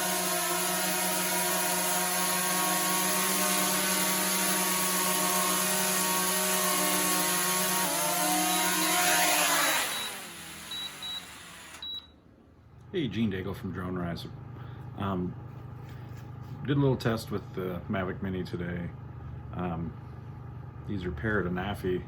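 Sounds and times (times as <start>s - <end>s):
drone motors whining: 0.0s - 12.0s
short high beeps: 9.8s - 12.1s.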